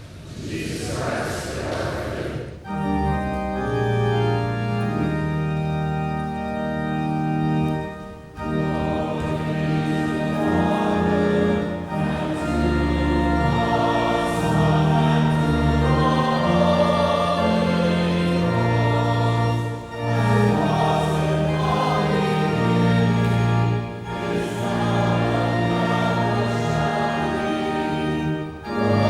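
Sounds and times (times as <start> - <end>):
organ accompaniment: 2.6 - 29.0
group singing a sacred song: 8.4 - 29.0.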